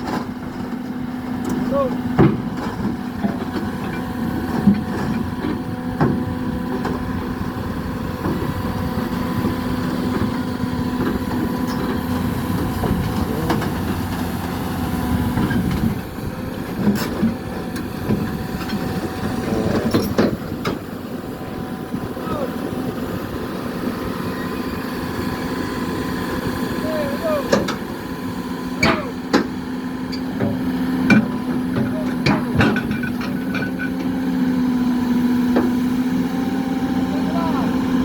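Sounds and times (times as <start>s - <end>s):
knocks and clanks: 0.0s - 7.0s, 10.1s - 16.0s, 28.8s - 34.2s
excavator diesel engine running: 0.0s - 38.0s.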